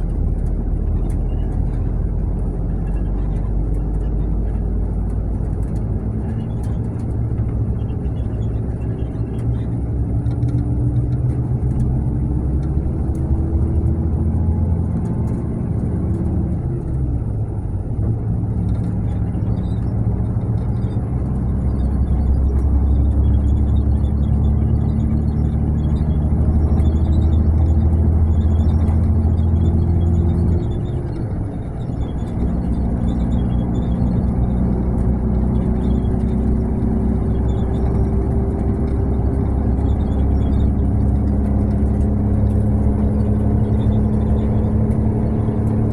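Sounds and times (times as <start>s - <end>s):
coach diesel engine running: 0.0s - 45.9s
tyre and road noise: 0.0s - 45.9s.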